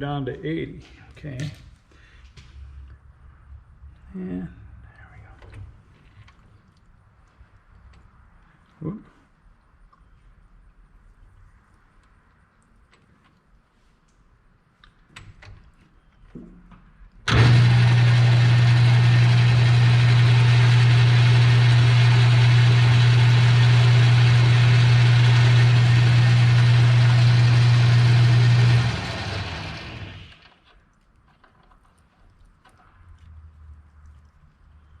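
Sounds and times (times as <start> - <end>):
metal lathe running: 17.3 - 30.5.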